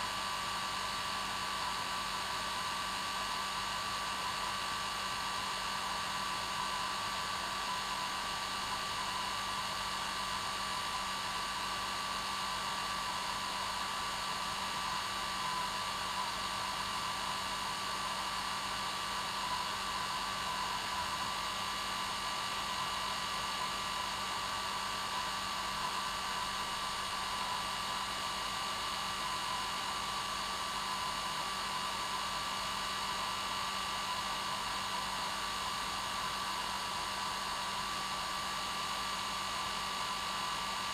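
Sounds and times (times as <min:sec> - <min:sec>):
hair dryer running: 0:12.4 - 0:40.9.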